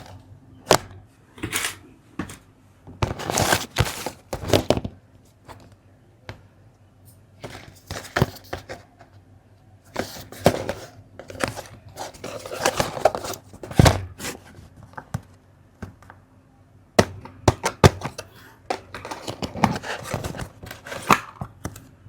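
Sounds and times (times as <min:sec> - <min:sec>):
plastic bricks scraping and rustling: 0:09.9 - 0:14.6, 0:18.0 - 0:21.4.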